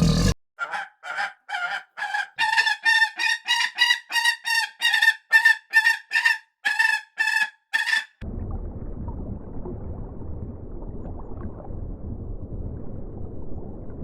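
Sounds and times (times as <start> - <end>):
bird calling rapidly: 0.0 - 8.2.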